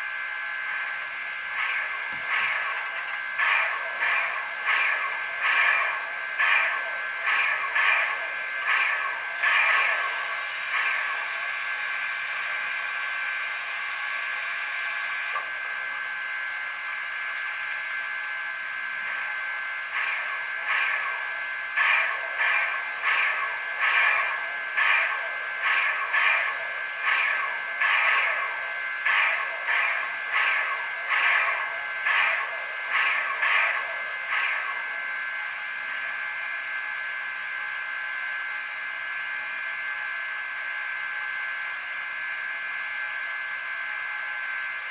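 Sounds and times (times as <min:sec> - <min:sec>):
rhythmic steam beats: 0:00.0 - 0:37.1
steam hiss: 0:01.0 - 0:15.5, 0:19.0 - 0:36.2.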